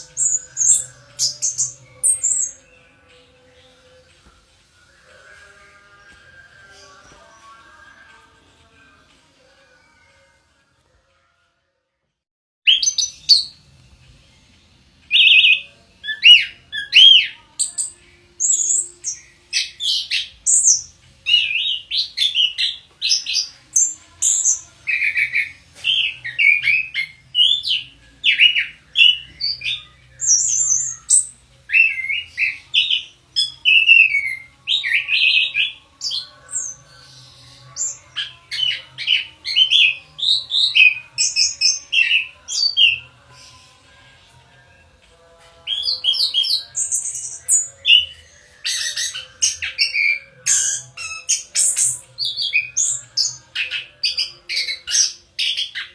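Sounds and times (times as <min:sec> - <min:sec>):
thrush singing whistled phrases: 0:00.0 - 0:02.9, 0:12.7 - 0:13.6, 0:15.1 - 0:44.0, 0:45.6 - 0:55.9.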